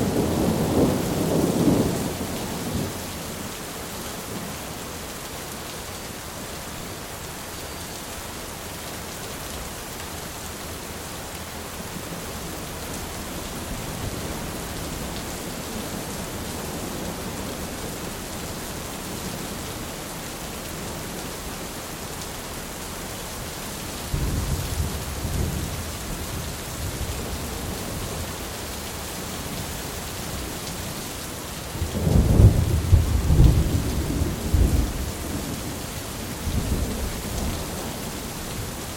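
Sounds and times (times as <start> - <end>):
heavy rain hissing: 0.0 - 38.9
thunder rumbling: 24.1 - 27.8, 31.8 - 35.8.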